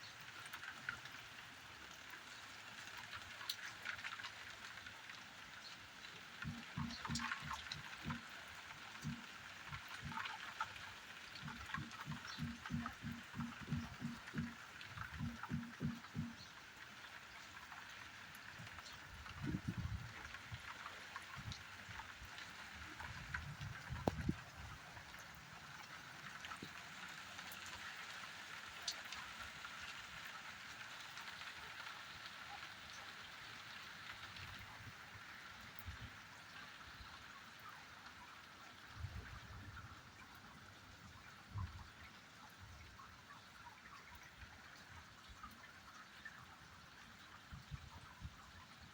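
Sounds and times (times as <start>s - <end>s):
steady rain hissing: 0.0s - 48.9s
drops landing with dull knocks: 6.4s - 8.2s, 11.4s - 16.4s.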